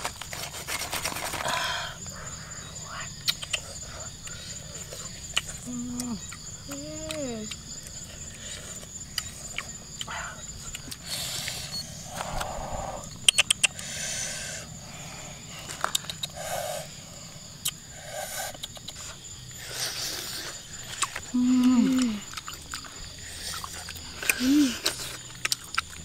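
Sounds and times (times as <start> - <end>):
people chewing and lip-smacking: 0.0 - 13.9, 15.6 - 16.5, 17.6 - 26.0
high insect whine: 0.0 - 26.0
person humming: 5.6 - 7.6, 21.3 - 22.3, 24.3 - 24.9
sharp clicks: 13.2 - 13.8.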